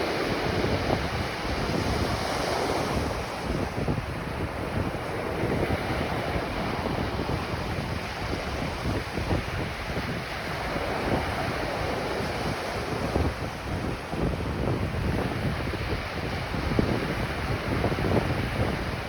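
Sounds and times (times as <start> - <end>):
ocean surf washing on beach: 0.0 - 19.0
wind buffeting microphone: 0.0 - 19.0.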